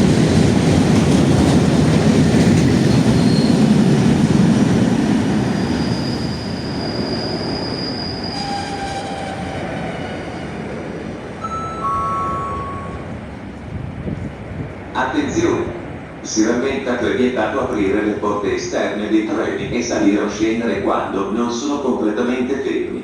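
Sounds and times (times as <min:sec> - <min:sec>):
train rumbling: 0:00.0 - 0:23.0
train wheel squeals: 0:02.8 - 0:03.7, 0:05.4 - 0:10.6.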